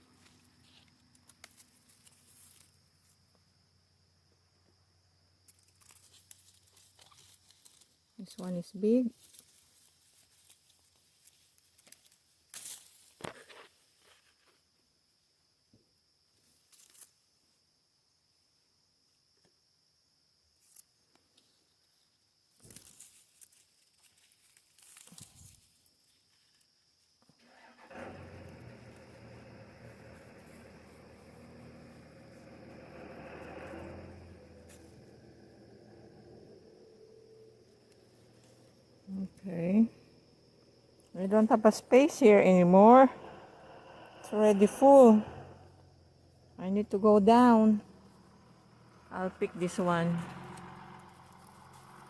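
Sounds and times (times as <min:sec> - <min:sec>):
leaves and twigs rustling: 0:00.0 - 0:03.3, 0:05.4 - 0:14.7, 0:16.4 - 0:17.3, 0:20.6 - 0:27.2, 0:28.6 - 0:32.7, 0:36.9 - 0:42.6, 0:49.4 - 0:52.0.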